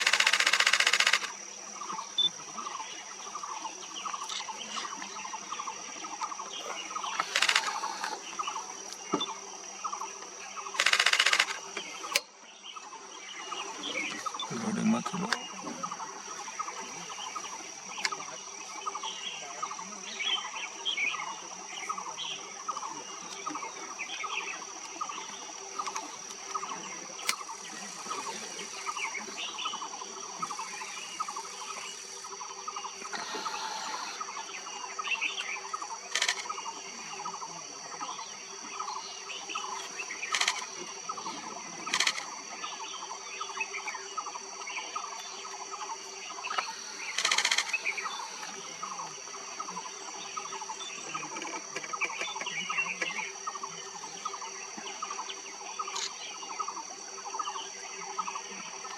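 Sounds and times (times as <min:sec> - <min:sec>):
sharp clicks: 0:00.0 - 0:01.4, 0:07.2 - 0:08.2, 0:10.8 - 0:12.3, 0:36.1 - 0:36.5, 0:40.3 - 0:40.7
birds calling: 0:00.0 - 0:58.9
high insect drone: 0:00.0 - 0:58.9.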